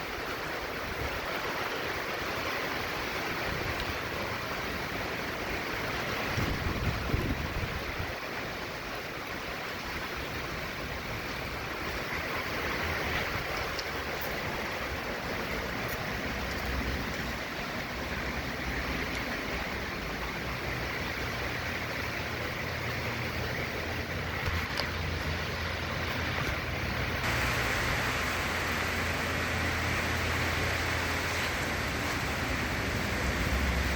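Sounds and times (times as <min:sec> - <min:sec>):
heavy rain: 0:00.0 - 0:33.9
hurricane wind: 0:00.0 - 0:33.9
wind buffeting microphone: 0:06.1 - 0:08.2.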